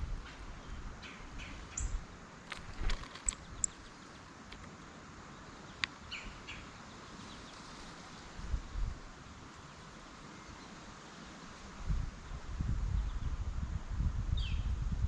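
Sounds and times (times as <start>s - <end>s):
songbirds chipping: 0.0s - 8.4s, 9.5s - 12.4s
faint outdoor hiss: 0.0s - 15.0s.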